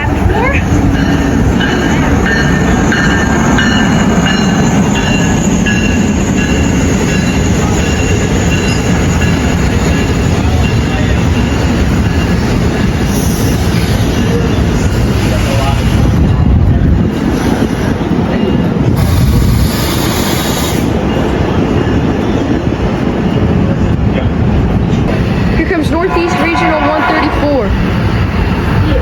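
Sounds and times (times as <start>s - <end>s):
train passing: 0.0s - 29.0s.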